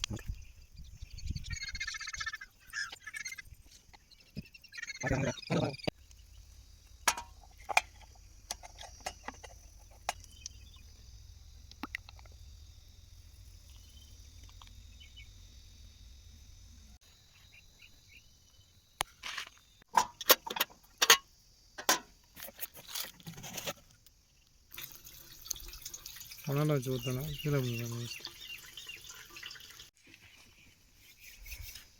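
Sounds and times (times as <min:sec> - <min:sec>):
tools and parts clicking and knocking: 0:07.0 - 0:10.3, 0:19.2 - 0:23.1.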